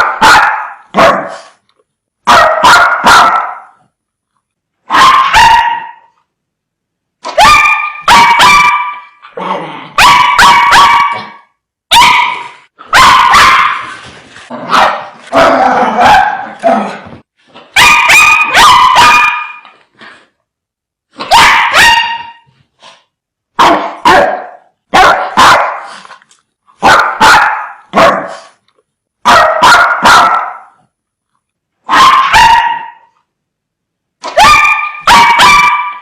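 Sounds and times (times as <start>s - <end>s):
dogs barking fiercely: 0.0s - 1.5s, 2.3s - 3.7s, 4.9s - 6.1s, 7.3s - 9.2s, 9.9s - 16.9s, 17.7s - 19.6s, 21.3s - 22.4s, 23.6s - 26.0s, 26.8s - 28.6s, 29.2s - 30.7s, 31.8s - 33.1s, 34.2s - 36.0s.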